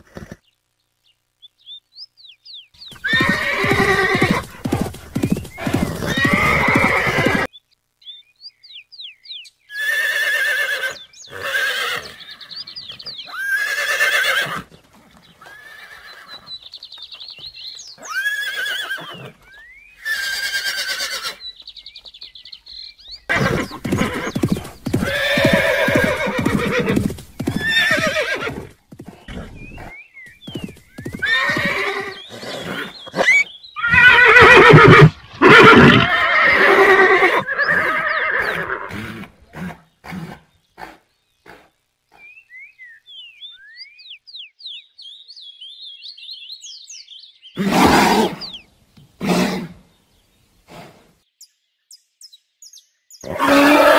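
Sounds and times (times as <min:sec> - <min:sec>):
horses neighing and whinnying: 0:00.0 - 0:00.4, 0:02.9 - 0:07.5, 0:09.7 - 0:16.6, 0:18.0 - 0:21.4, 0:23.3 - 0:41.7, 0:47.6 - 0:48.6, 0:49.2 - 0:49.8, 0:53.2 - 0:53.9
galloping hoofbeats: 0:02.9 - 0:07.5, 0:16.2 - 0:18.0, 0:23.4 - 0:31.9.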